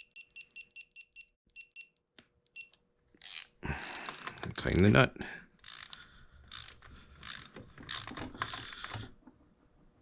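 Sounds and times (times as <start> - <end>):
torque wrench ratchet clicks: 5.6 - 6.7.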